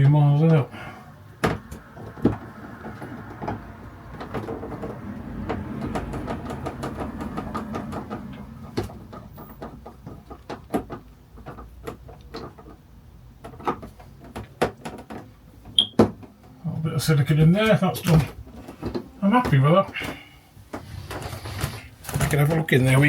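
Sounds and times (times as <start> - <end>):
hands clicking and tapping on plastic: 1.3 - 16.6.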